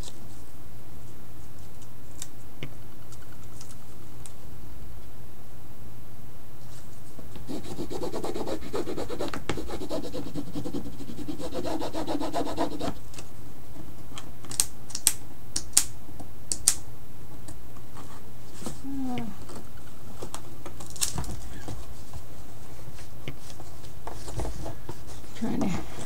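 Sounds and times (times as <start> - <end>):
rubbing strokes on painting surface: 6.7 - 13.0.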